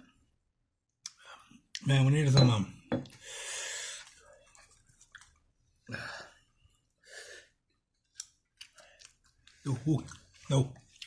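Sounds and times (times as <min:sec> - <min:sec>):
person breathing hard: 0:03.2 - 0:04.2.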